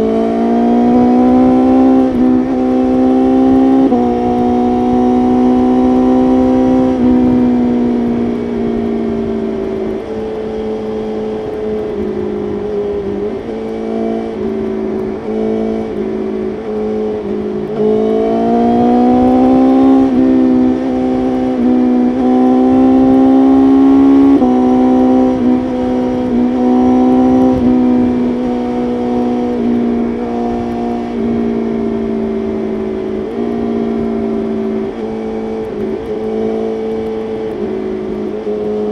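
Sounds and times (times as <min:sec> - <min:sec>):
motorcycle engine accelerating: 0:00.0 - 0:38.9
wind rush: 0:00.0 - 0:38.9.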